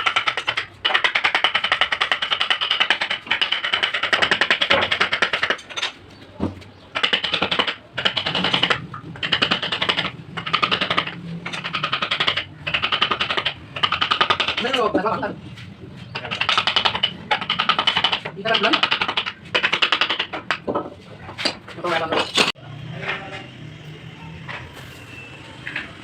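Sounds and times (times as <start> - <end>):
carving tool tapping wood: 0.0 - 5.6, 6.4 - 15.0, 16.1 - 21.6.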